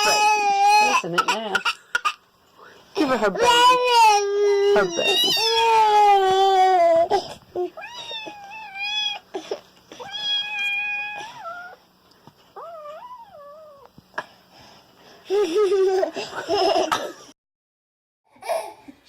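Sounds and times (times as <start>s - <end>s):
cat meowing: 10.0s - 11.8s.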